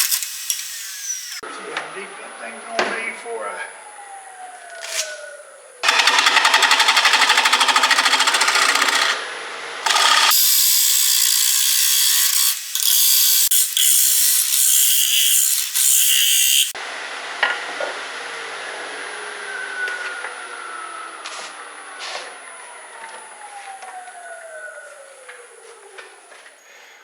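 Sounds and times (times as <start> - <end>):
wood lathe running with faint whine: 5.8 - 9.2, 9.8 - 10.4.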